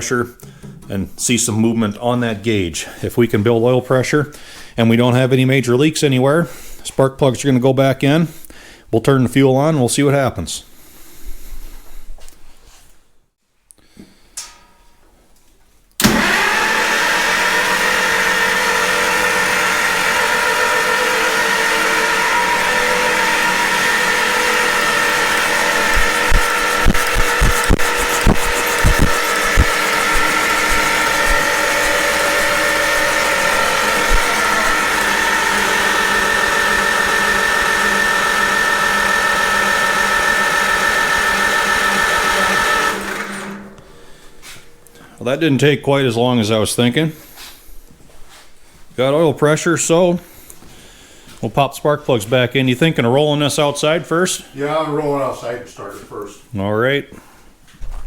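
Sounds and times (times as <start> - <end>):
engine running: 16.0 - 45.1
starter motor cranking engine: 16.0 - 45.2.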